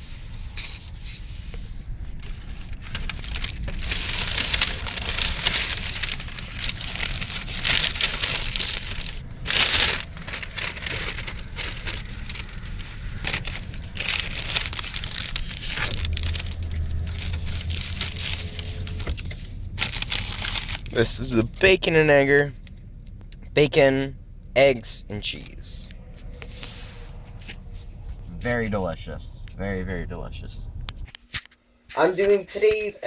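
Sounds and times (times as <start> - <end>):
low steady hum: 0.0 - 33.0
paper bag rustling and crinkling: 2.2 - 21.8.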